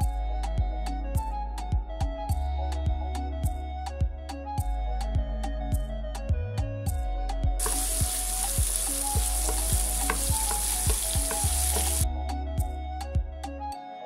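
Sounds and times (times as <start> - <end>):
background music with beat: 0.0 - 14.0
food sizzling in hot oil: 7.6 - 12.0.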